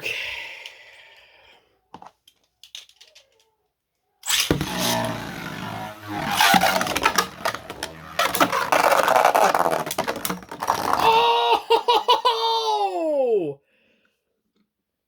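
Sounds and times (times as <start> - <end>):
spinning top steady whine: 4.3 - 11.0
spinning tops whirring and clattering: 4.3 - 11.2.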